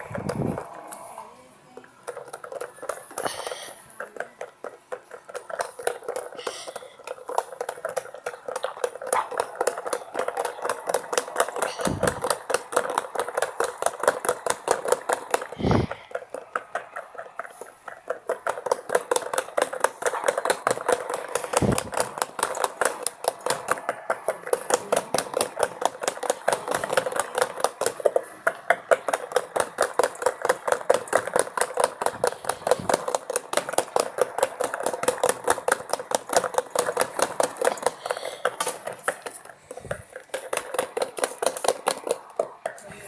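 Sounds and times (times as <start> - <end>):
washing machine motor hum: 0.0 - 3.4, 9.1 - 16.5, 21.2 - 38.6.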